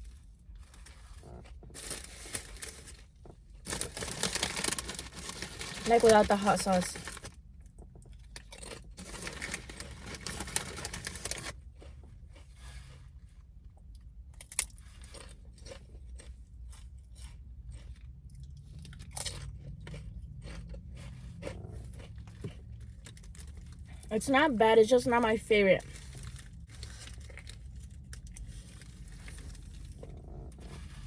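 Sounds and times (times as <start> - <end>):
crunching bites: 3.7 - 7.3, 8.1 - 12.0, 14.3 - 24.1.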